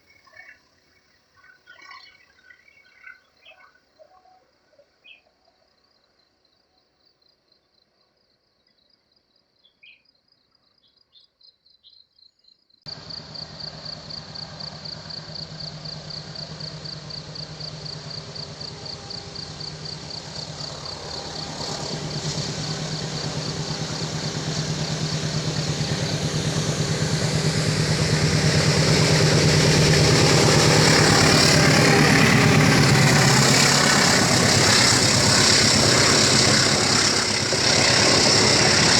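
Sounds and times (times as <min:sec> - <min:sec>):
insects chirping: 0:09.8 - 0:38.9
heavy vehicle engine: 0:12.9 - 0:38.9.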